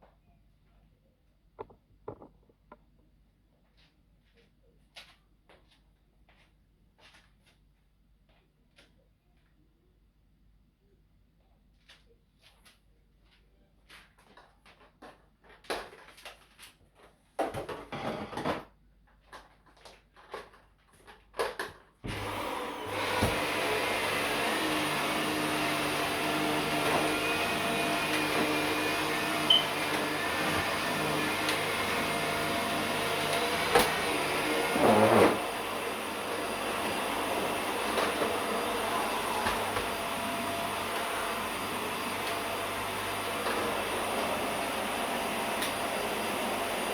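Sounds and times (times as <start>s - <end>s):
vacuum cleaner humming: 22.1s - 46.9s.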